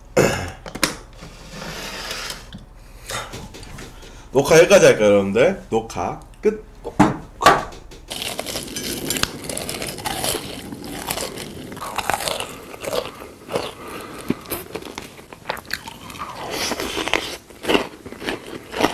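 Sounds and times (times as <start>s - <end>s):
crunchy biting and chewing: 8.1s - 18.9s.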